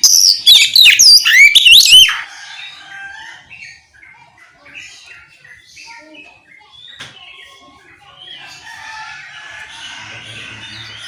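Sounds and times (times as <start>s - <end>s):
magpie-robin whistled song: 0.0s - 2.2s
bird chirps and calls: 0.0s - 11.0s.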